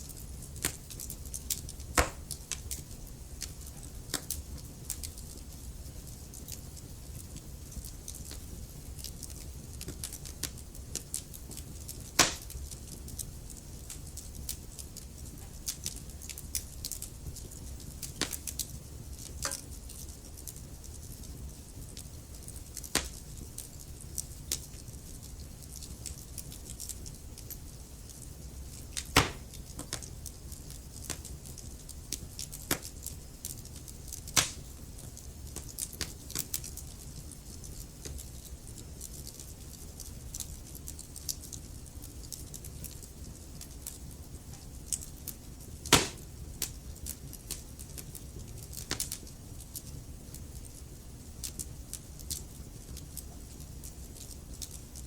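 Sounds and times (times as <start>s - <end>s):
loud fire snaps: 0.0s - 55.0s
low rumble of burning logs: 0.0s - 55.0s
wood fire crackling: 0.0s - 55.0s.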